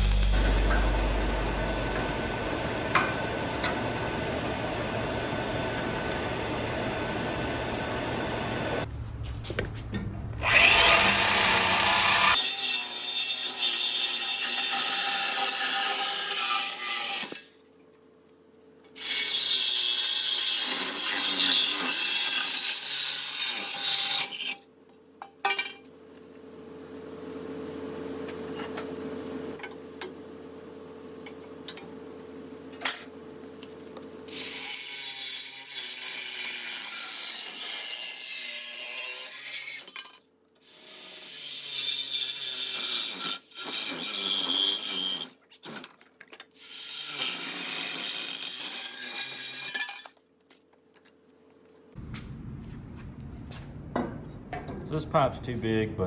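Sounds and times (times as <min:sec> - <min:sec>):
low steady hum: 0:00.0 - 0:07.4, 0:51.6 - 0:56.0
power tool cutting: 0:10.4 - 0:17.5, 0:19.0 - 0:24.5, 0:40.6 - 0:45.8, 0:46.6 - 0:50.1.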